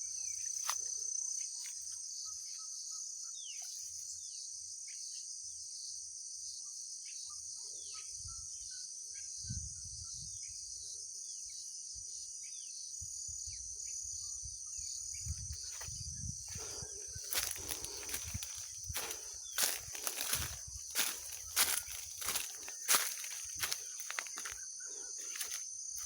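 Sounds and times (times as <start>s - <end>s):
insects chirping: 0.0s - 26.0s
footsteps crunching on trail: 15.6s - 26.0s.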